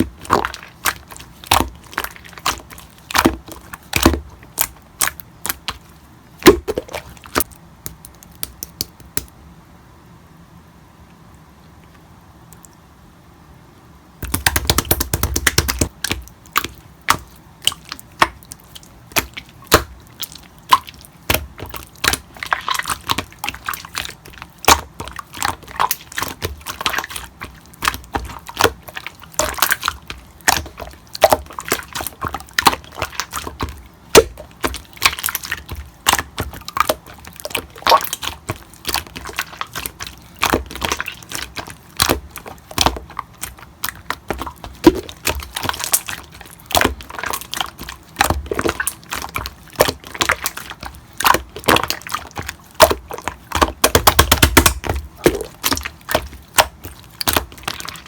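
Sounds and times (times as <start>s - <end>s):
slime squeezed by hand: 14.3s - 58.0s.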